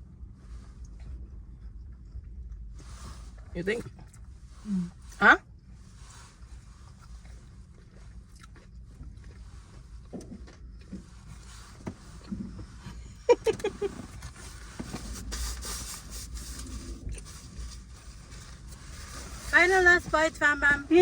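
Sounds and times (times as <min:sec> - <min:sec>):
low steady rumble: 0:00.0 - 0:21.0
person chewing food: 0:06.5 - 0:11.5
rustling: 0:11.0 - 0:21.0.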